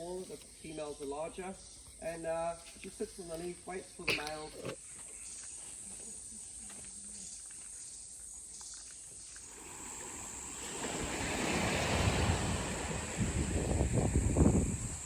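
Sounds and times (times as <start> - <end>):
faint outdoor hush: 0.0 - 15.0
rushing noise: 9.5 - 15.0
low rumbling gusts: 9.6 - 15.0.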